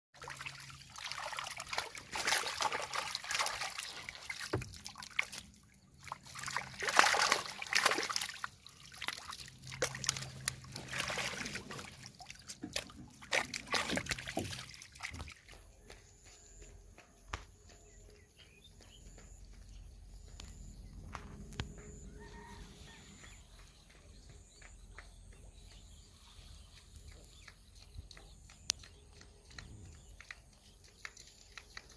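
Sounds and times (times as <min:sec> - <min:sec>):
water splashing and trickling: 0:00.2 - 0:16.1, 0:24.9 - 0:31.9.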